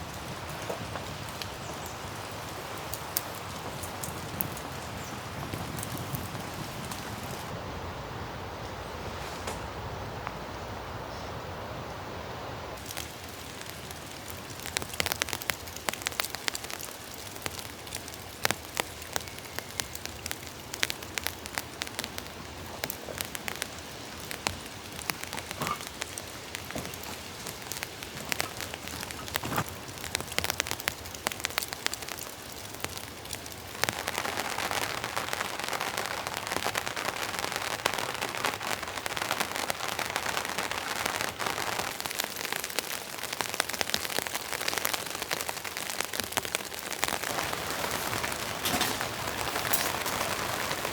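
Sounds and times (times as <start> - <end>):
rain pattering on a tent: 0.0 - 50.9
heavy drops ticking: 12.8 - 40.0.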